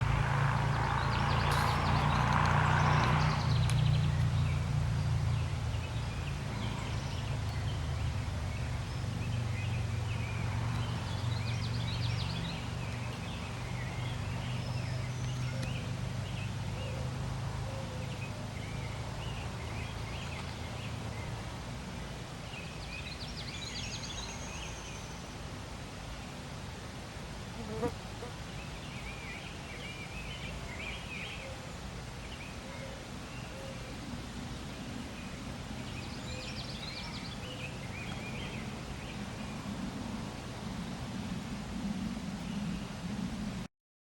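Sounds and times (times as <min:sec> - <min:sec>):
birds calling: 0:00.0 - 0:21.4.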